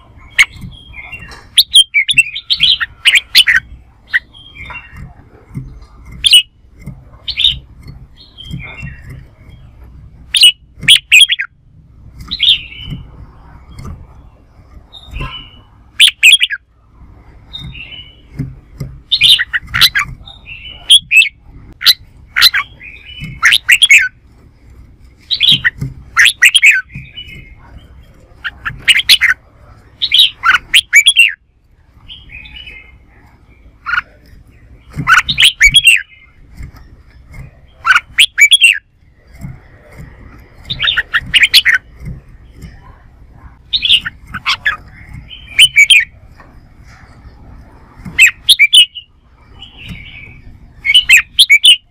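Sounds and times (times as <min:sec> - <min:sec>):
bulbul singing sweet phrases: 0:00.0 - 0:06.6, 0:07.2 - 0:11.6, 0:12.2 - 0:16.7, 0:19.0 - 0:24.2, 0:25.3 - 0:31.4, 0:32.0 - 0:39.5, 0:43.7 - 0:46.2, 0:48.2 - 0:51.9
soft bird chattering: 0:00.0 - 0:24.2, 0:25.1 - 0:51.9.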